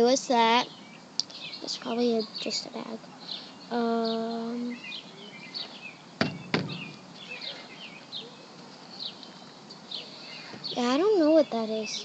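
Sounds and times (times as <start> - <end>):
small birds chirping: 0.0 - 12.0
sharp knocks: 6.2 - 7.0.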